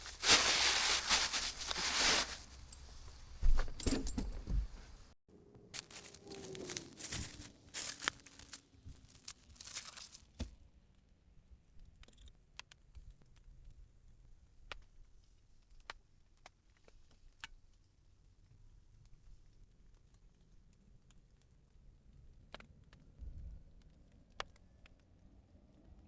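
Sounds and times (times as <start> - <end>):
material crinkling and tearing: 0.0 - 2.7, 5.7 - 10.5.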